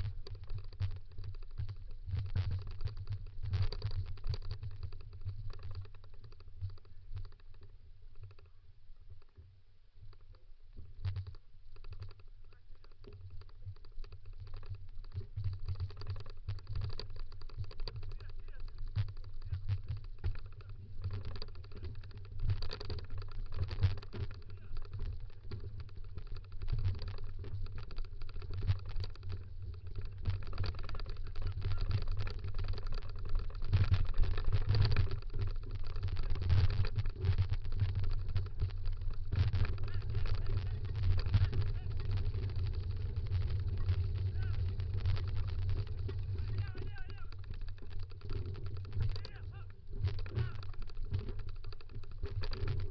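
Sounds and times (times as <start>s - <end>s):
wheels crackling over gravel: 0.0s - 9.4s, 10.1s - 52.9s
wind rumble on microphone: 12.8s - 52.9s.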